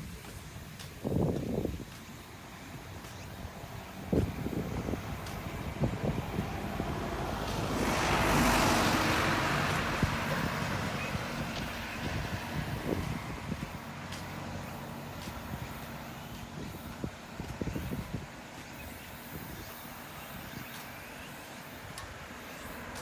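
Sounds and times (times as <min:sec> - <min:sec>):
vehicle passing close by: 0:03.7 - 0:17.0.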